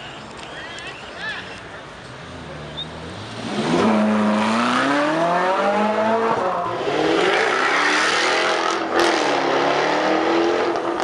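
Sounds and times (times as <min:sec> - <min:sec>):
sports car engine accelerating: 0:02.3 - 0:11.0.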